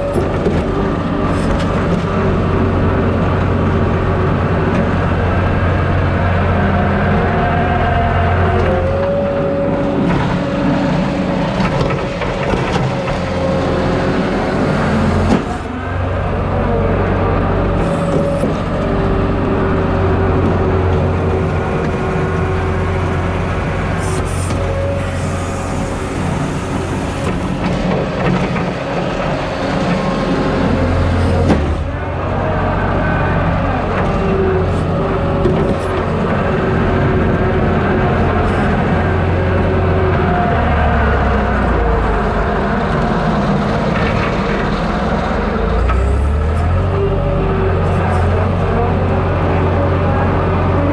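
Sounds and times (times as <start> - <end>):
diesel engine running under load: 0.0 - 50.9
hydraulic whine: 0.0 - 50.9.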